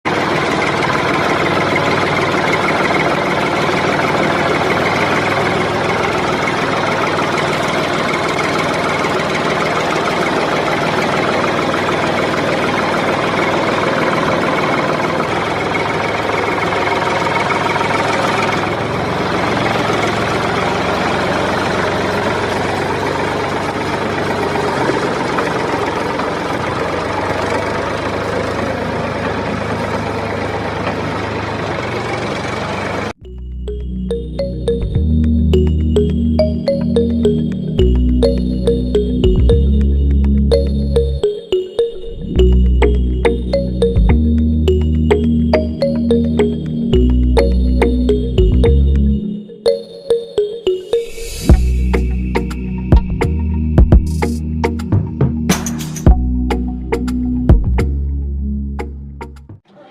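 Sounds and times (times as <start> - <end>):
small engine running: 0.1 - 41.2.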